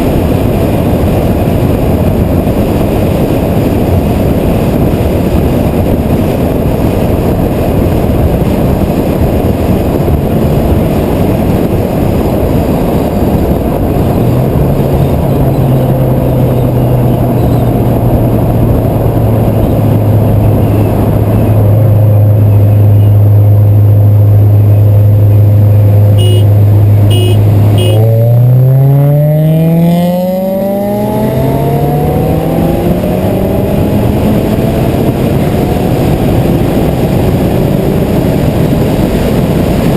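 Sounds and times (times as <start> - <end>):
car engine accelerating: 0.0 - 39.9
wind and road rush: 0.0 - 39.9.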